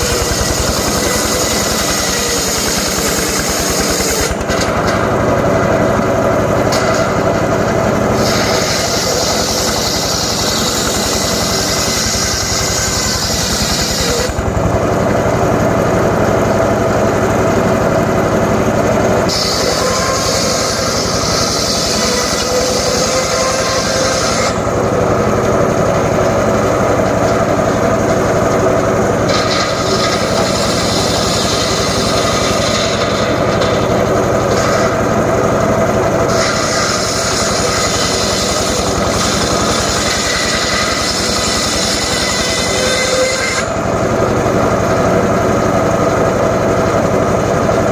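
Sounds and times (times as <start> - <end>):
saw blade cutting wood: 0.0 - 46.1
circular saw humming: 0.0 - 47.9.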